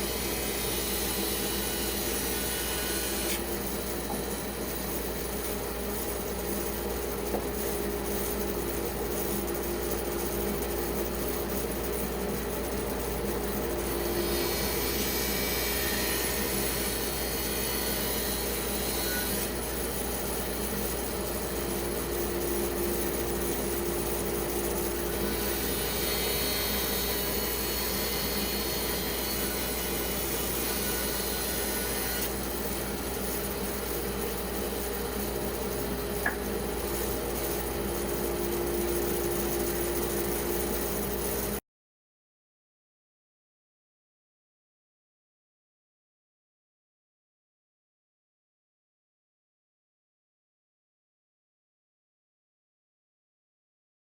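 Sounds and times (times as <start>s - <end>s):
saw cutting through log: 0.0s - 4.4s, 24.8s - 33.1s
band saw motor hum: 0.0s - 41.6s.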